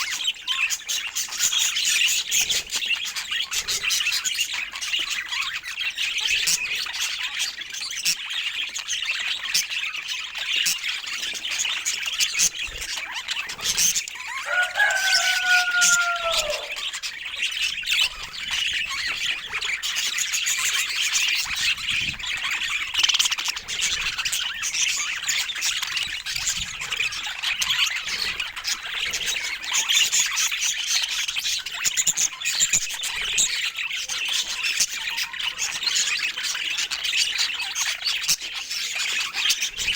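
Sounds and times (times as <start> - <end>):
budgerigars chattering and chirping: 0.0 - 39.9
long falling bird call: 14.2 - 17.2.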